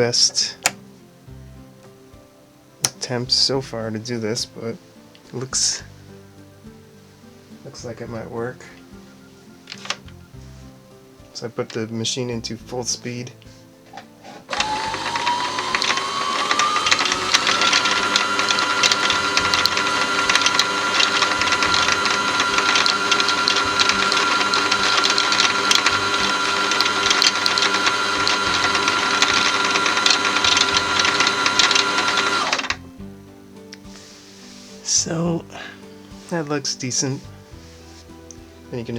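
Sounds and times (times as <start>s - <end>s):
sewing machine winding bobbin: 9.7s - 10.1s, 14.0s - 32.8s.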